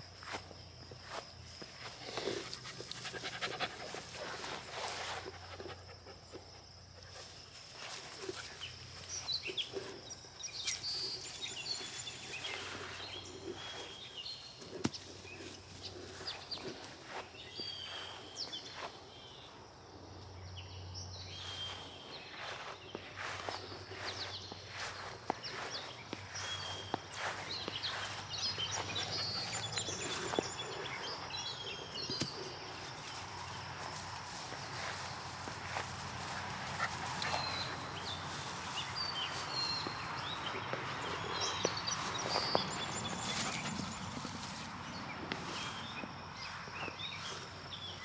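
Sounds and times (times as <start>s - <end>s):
dog panting: 2.2s - 4.6s, 35.8s - 38.1s.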